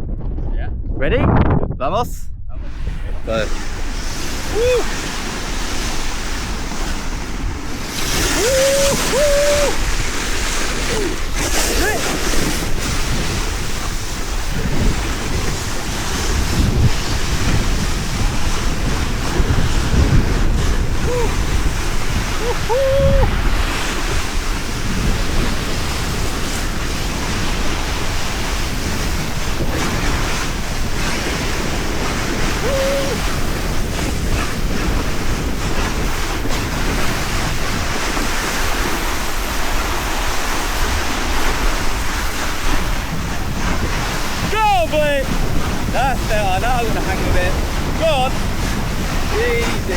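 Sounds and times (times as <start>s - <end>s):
wind buffeting microphone: 0.0s - 49.9s
sandboard sliding on gravel: 2.7s - 49.9s.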